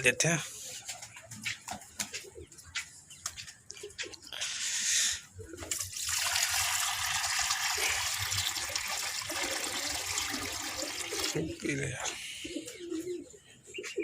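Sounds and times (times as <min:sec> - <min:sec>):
water pouring: 0:05.7 - 0:12.0.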